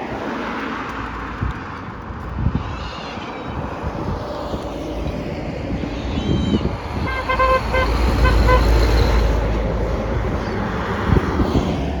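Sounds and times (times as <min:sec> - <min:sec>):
horn toots: 0:07.0 - 0:09.4.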